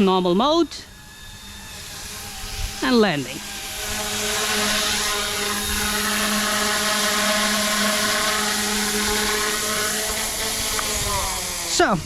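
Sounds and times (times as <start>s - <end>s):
rc helicopter motor and rotors whine: 0.0s - 12.0s.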